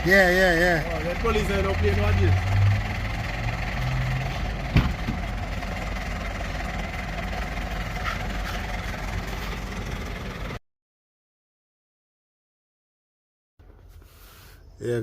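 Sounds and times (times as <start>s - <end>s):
vehicle engine rumbling: 0.0s - 10.6s, 13.6s - 15.0s.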